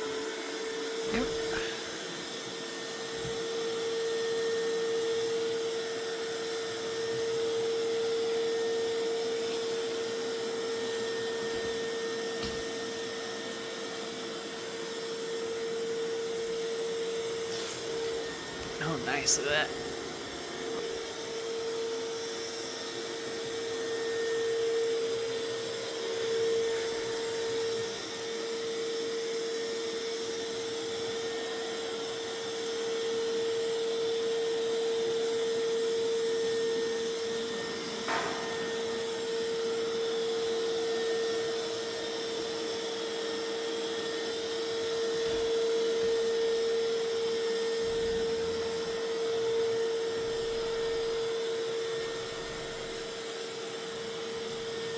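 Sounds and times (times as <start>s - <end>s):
robot vacuum motor whine: 0.0s - 54.9s.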